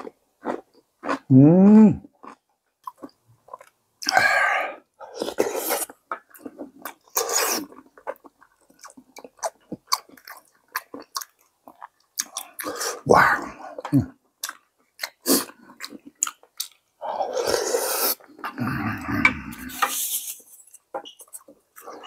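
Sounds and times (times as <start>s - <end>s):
wet chewing and smacking: 2.0s - 4.2s, 5.0s - 12.9s, 13.7s - 17.0s.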